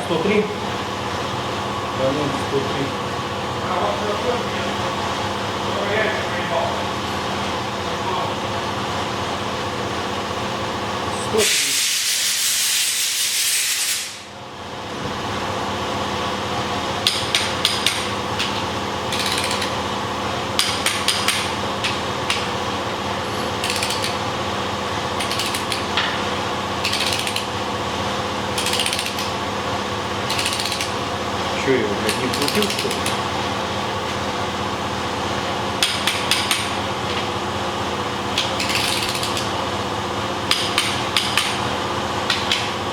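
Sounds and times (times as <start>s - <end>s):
loud hiss: 11.4s - 14.3s
wrench ratcheting clicks: 19.1s - 19.8s, 23.6s - 24.2s, 25.2s - 25.8s, 26.8s - 27.5s, 28.6s - 29.3s, 30.3s - 31.0s, 32.1s - 33.2s, 38.4s - 39.5s.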